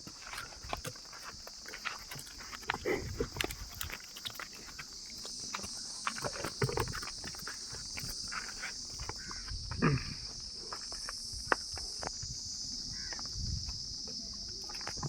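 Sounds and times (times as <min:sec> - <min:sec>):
footsteps on dry ground: 0:00.0 - 0:09.6
insects chirring: 0:00.0 - 0:15.0.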